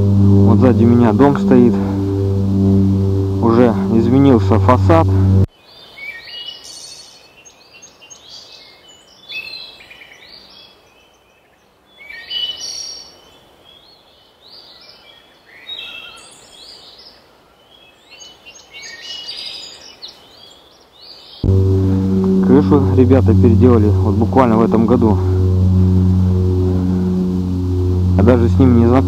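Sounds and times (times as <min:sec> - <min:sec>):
songbirds chirping and twittering: 0:05.5 - 0:21.5.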